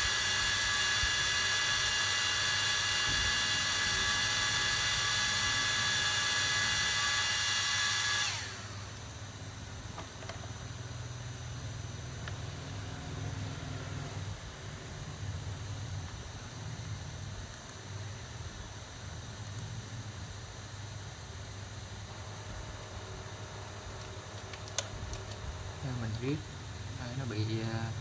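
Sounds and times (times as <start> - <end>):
electric tool whining: 0.0 - 11.2.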